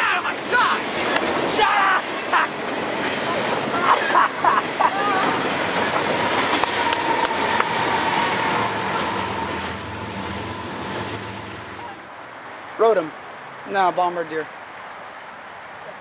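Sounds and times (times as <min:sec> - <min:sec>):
diesel locomotive engine drone: 0:00.0 - 0:12.3
wheels clattering on rail: 0:00.2 - 0:12.1
thin steady whine: 0:02.8 - 0:12.1.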